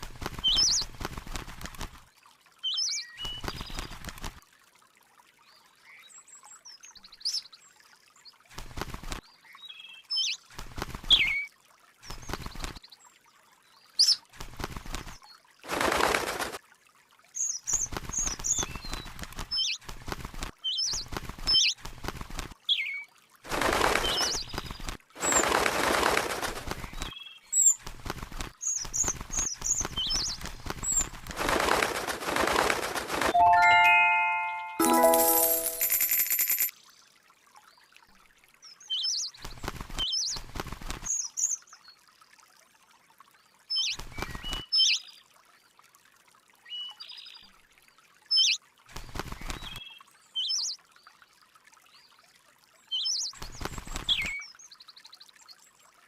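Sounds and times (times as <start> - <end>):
wing flapping: 0.0 - 2.0, 3.2 - 4.4, 8.6 - 9.2, 10.6 - 11.3, 14.4 - 16.6, 17.7 - 22.6, 23.5 - 27.1, 27.8 - 36.7, 39.4 - 41.1, 48.9 - 49.8, 53.4 - 54.3.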